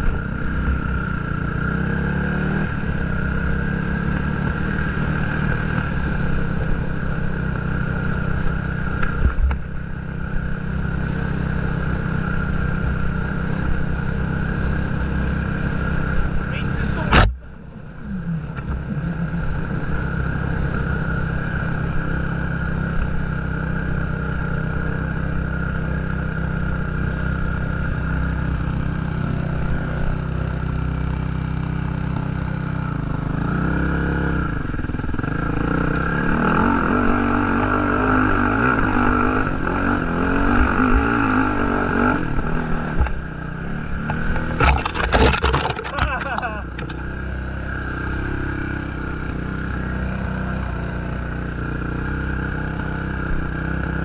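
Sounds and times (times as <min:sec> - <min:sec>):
dirt bike engine revving: 0:43.6 - 0:47.1.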